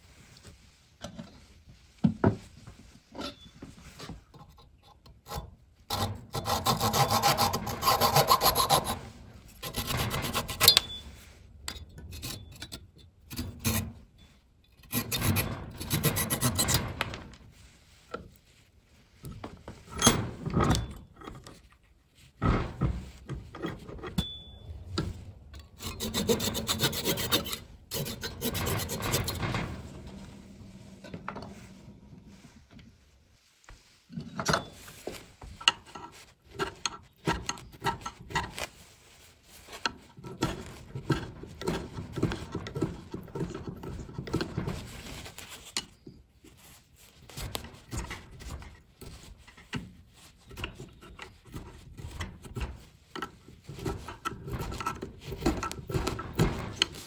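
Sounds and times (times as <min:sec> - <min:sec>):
hand sanding wood: 0:05.9 - 0:10.8, 0:14.9 - 0:16.9, 0:25.7 - 0:29.8.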